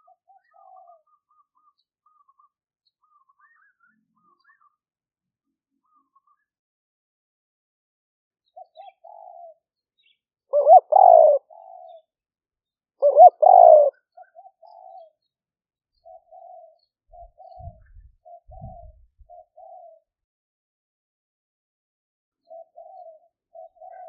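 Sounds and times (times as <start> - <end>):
dove cooing: 0.0 - 1.0, 8.6 - 9.6, 10.5 - 12.1, 13.0 - 15.2, 16.0 - 20.0, 22.5 - 24.0.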